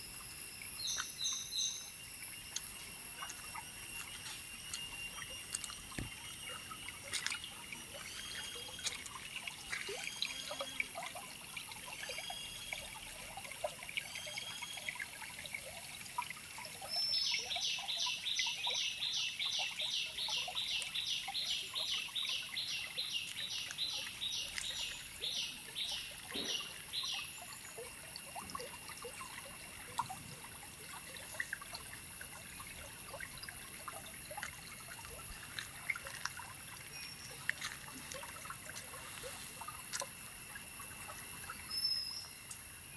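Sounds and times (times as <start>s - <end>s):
high insect-like drone: 0.0s - 11.4s
faint trickling water: 0.0s - 42.9s
birds calling: 21.4s - 27.2s.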